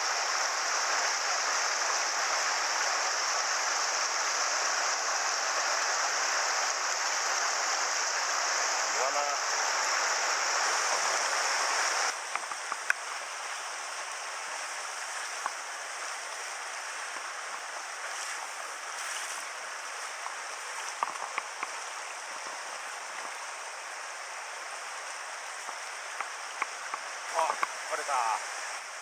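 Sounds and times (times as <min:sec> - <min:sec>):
river water rushing over rocks: 0:00.0 - 0:29.0
faint ticks: 0:12.2 - 0:13.0, 0:15.4 - 0:15.6, 0:20.2 - 0:21.8, 0:25.6 - 0:27.8.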